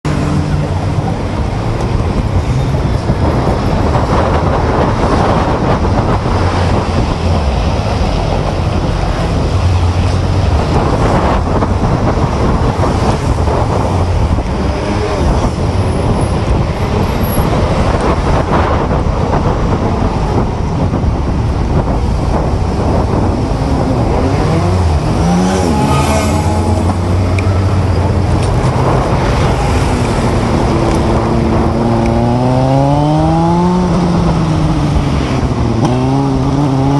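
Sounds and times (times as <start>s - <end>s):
city street traffic: 0.0s - 36.9s
engine changing pitch: 23.6s - 34.9s.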